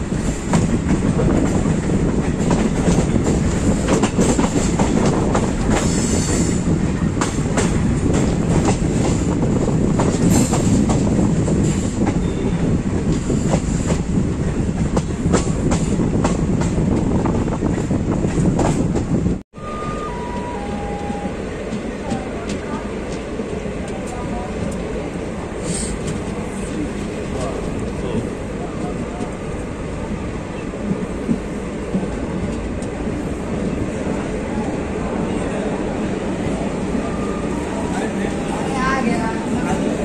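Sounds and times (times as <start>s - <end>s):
train rumbling: 0.0s - 40.0s
descending tones: 19.5s - 22.1s.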